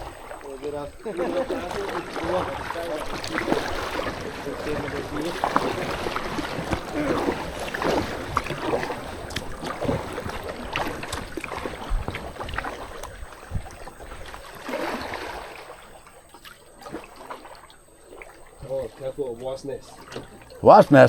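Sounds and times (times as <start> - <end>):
paddle knock: 0.0 - 15.4
kayak paddles splashing in water: 0.0 - 21.0
water dripping: 0.0 - 21.0.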